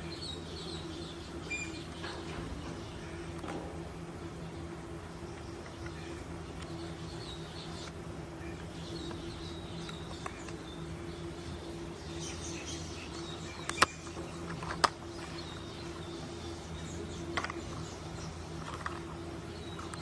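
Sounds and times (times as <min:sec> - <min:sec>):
steady low hum: 0:00.0 - 0:20.0
sharp clicks: 0:13.5 - 0:15.6.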